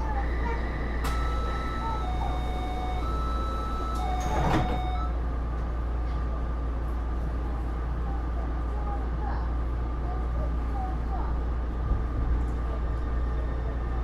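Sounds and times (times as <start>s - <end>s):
door-closing warning tones: 0.0s - 5.2s
train car equipment hum: 0.0s - 14.0s
sliding doors shutting: 0.3s - 5.1s.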